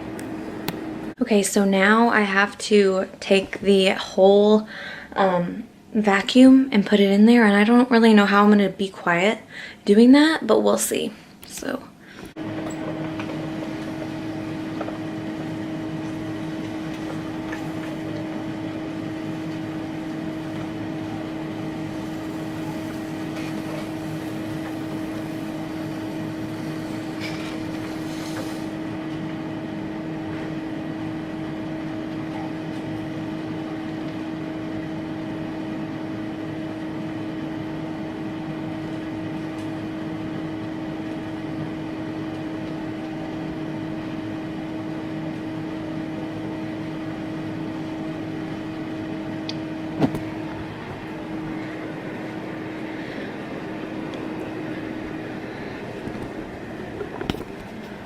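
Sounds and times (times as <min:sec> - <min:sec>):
electric motor hum: 0:12.3 - 0:58.0.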